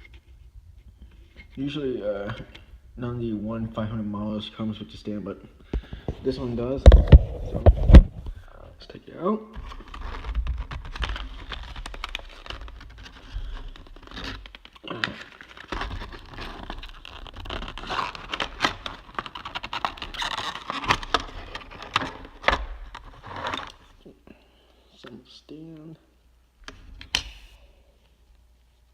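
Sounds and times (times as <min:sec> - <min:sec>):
packaging crinkling and scraping: 0:09.6 - 0:24.0.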